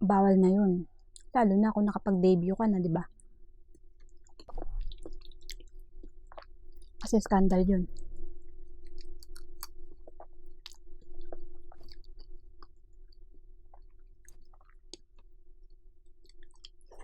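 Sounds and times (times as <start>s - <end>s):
faint steady hum: 0.0s - 17.0s
wet mouth clicks and smacks: 3.7s - 7.0s.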